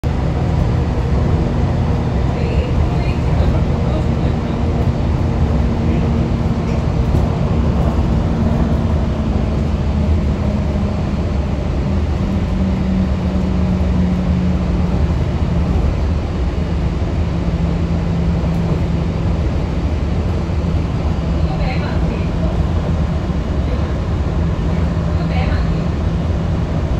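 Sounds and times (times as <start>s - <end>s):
monorail cabin rumble: 0.0s - 26.9s
monorail motor hum: 0.0s - 26.9s.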